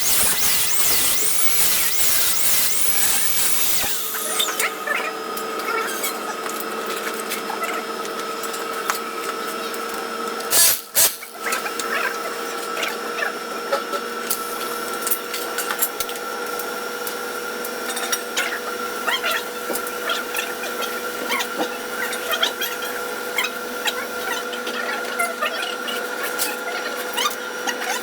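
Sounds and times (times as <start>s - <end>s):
welding crackles: 0.0s - 4.8s
welding bursts: 0.0s - 5.0s, 10.5s - 11.3s
welding hiss and whine: 0.0s - 6.1s, 10.5s - 11.3s.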